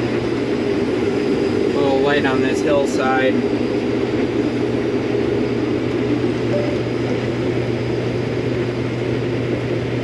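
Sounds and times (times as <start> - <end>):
constant low hum: 0.0 - 10.0
combine harvester running: 6.3 - 10.0.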